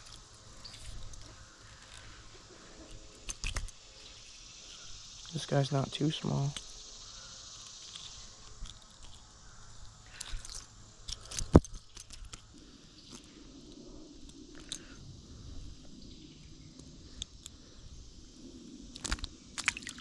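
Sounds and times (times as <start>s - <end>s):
small clicks and rustles: 0.0s - 5.4s, 7.6s - 15.0s, 18.9s - 20.0s.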